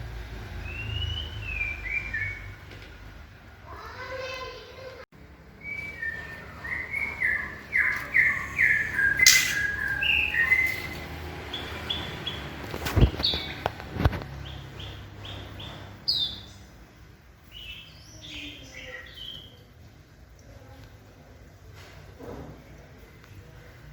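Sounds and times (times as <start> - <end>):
birds chirping: 0.6 - 2.7, 3.8 - 16.8, 17.4 - 19.6.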